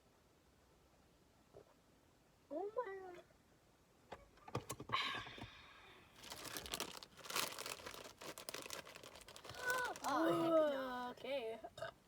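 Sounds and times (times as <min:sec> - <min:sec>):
crunchy snacks crackling: 0:06.2 - 0:10.8.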